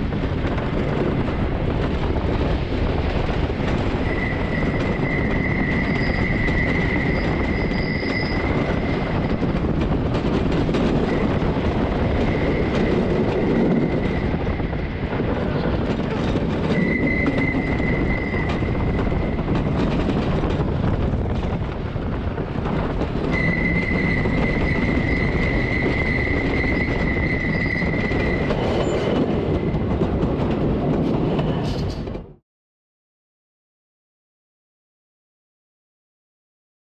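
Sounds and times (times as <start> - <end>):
roller coaster rumbling on wooden track: 0.0 - 32.4
high wheel squeal: 3.9 - 9.3, 16.2 - 19.4, 23.3 - 29.2.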